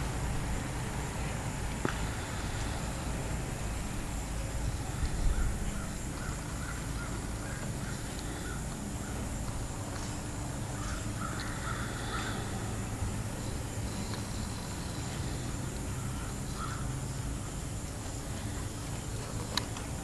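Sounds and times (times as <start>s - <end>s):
low outdoor rumble: 0.0s - 20.0s
distant bird calling: 1.8s - 3.7s, 4.3s - 19.8s.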